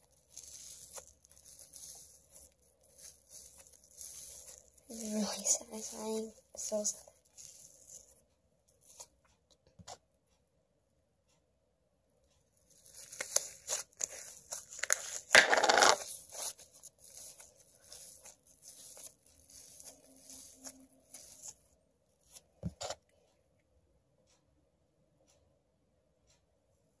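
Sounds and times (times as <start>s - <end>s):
slime crackling and popping: 0.0s - 8.1s, 12.7s - 21.6s.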